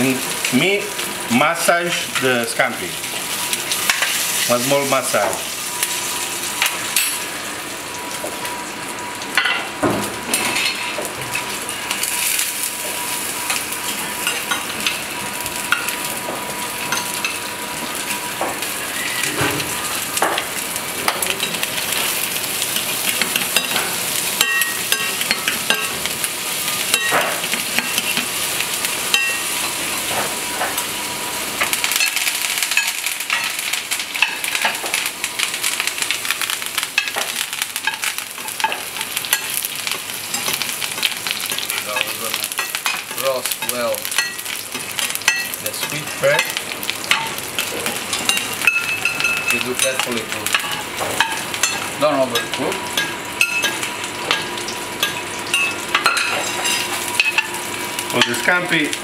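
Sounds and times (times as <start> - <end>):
seafood sizzling in a frying pan: 0.0 - 59.0
metal utensils clicking on pan: 22.8 - 26.0, 26.9 - 28.3, 36.9 - 39.6, 40.3 - 58.6.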